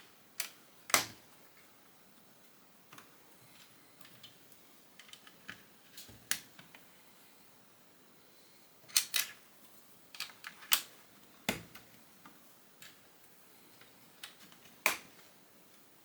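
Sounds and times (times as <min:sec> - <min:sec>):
plastic bricks clicking together: 0:00.4 - 0:01.2, 0:08.9 - 0:09.4, 0:10.2 - 0:10.9.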